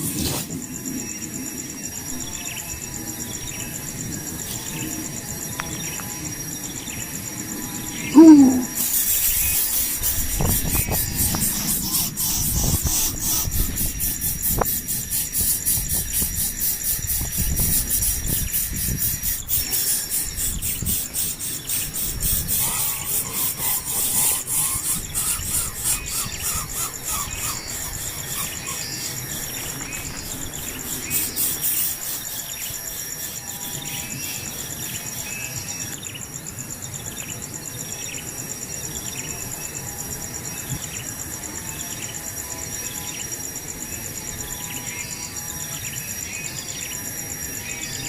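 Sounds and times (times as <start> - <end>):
high-pitched insect trill: 0.0 - 48.0
quick chirps: 8.2 - 13.1.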